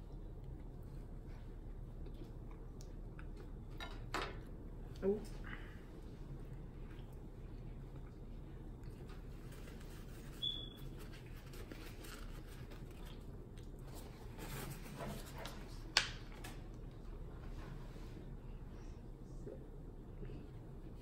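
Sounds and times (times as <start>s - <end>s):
chewing and mouth clicks: 0.0s - 5.0s, 6.3s - 14.2s.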